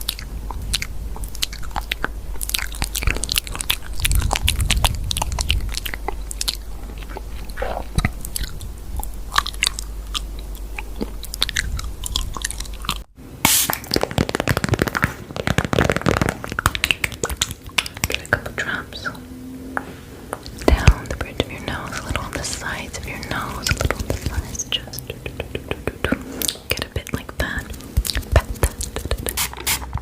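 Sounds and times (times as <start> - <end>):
crunchy chewing and biting: 0.0 - 18.5.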